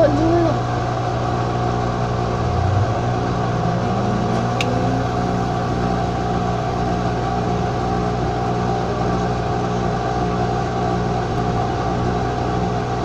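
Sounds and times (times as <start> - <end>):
washing machine motor humming: 2.3 - 9.0.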